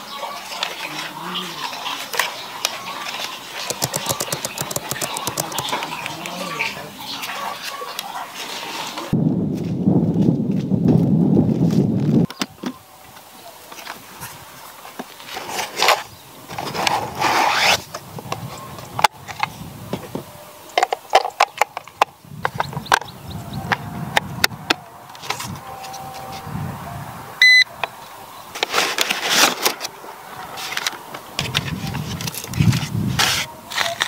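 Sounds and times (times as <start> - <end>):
short electronic beep: 27.4 - 27.7.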